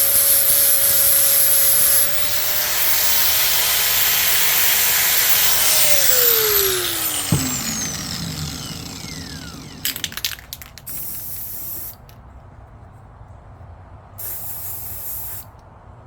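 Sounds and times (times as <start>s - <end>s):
angle grinder grinding steel: 0.0s - 12.1s
grinder disc spinning down: 0.0s - 12.1s
handling clicks: 6.8s - 11.2s.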